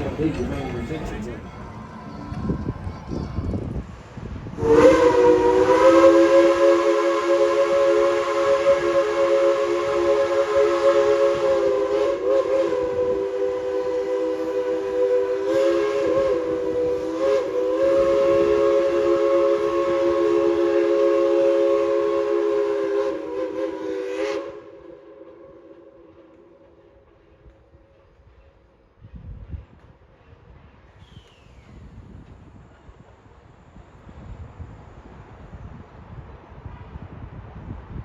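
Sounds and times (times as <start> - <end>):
steam locomotive chime whistle: 0.0 - 3.8, 4.6 - 27.0.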